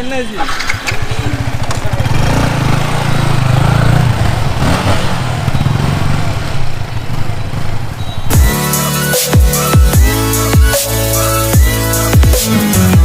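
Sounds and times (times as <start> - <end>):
motorcycle engine idling: 0.4 - 8.5.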